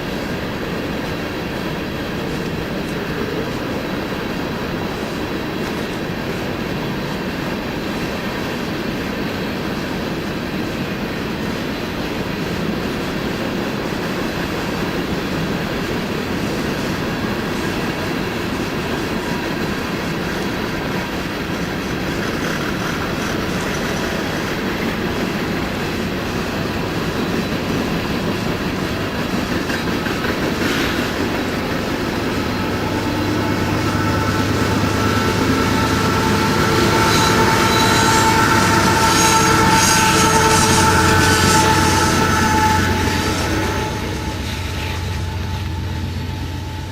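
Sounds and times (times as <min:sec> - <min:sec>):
train wheels clattering on rails: 0:00.0 - 0:46.9
high wheel squeal: 0:30.6 - 0:46.9.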